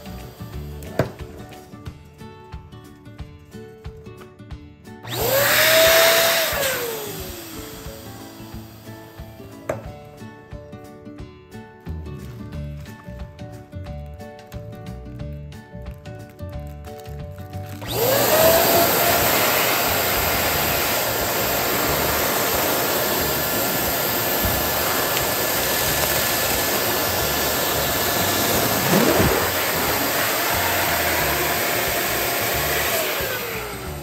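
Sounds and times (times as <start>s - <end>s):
electric air pump whining: 0.0s - 1.7s, 5.0s - 10.0s, 17.6s - 34.0s.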